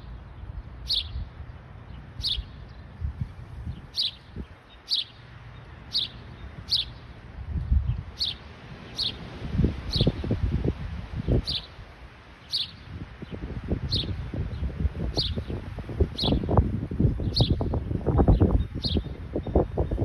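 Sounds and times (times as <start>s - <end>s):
small bird chirping: 0.0s - 1.3s, 1.9s - 7.1s, 8.2s - 9.2s, 11.3s - 11.8s, 12.4s - 14.2s, 15.1s - 16.6s, 17.2s - 19.7s
wind rumble on microphone: 0.0s - 20.0s.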